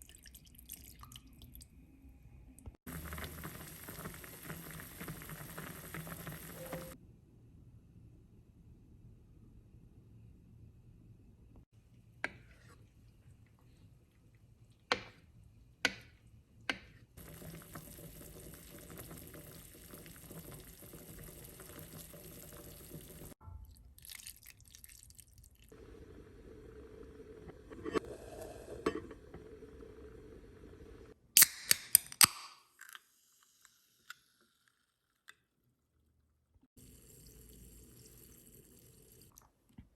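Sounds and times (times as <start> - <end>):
water pouring: 0.0 - 1.7, 2.9 - 7.0, 17.2 - 25.8, 36.8 - 39.6.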